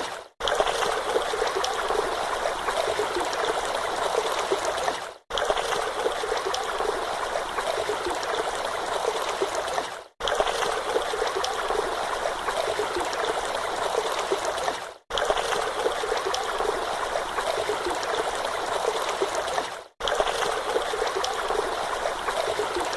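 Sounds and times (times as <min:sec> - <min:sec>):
rushing trickling water: 0:00.0 - 0:22.9.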